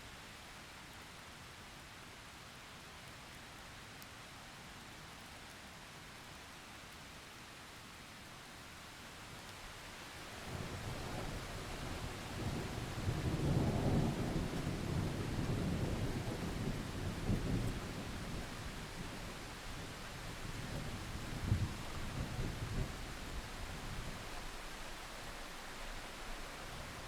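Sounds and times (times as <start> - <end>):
steady rain hiss: 0.0 - 27.0
low roll of thunder: 10.4 - 24.5.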